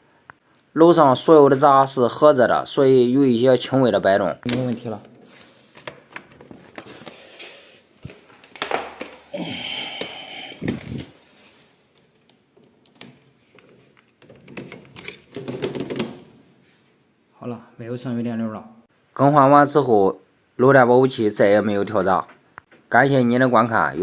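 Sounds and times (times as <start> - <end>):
hands rustling: 6.4 - 11.8.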